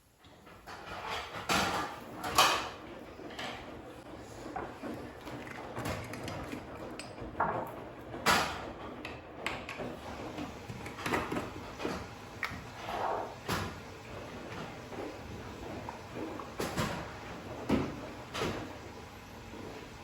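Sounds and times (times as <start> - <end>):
kitchen clicks and knocks: 0.6 - 2.8, 4.6 - 13.8.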